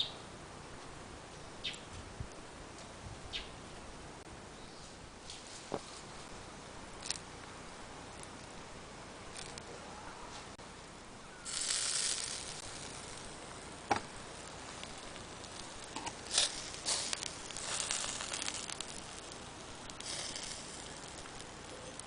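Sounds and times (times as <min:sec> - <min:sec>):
food sizzling on a grill: 0:11.4 - 0:22.0.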